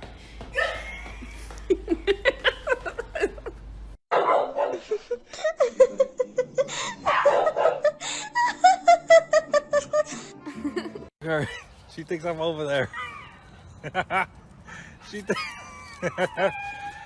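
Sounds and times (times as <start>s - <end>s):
people laughing: 0.6s - 3.6s, 4.7s - 11.6s, 13.8s - 14.4s, 15.2s - 16.6s.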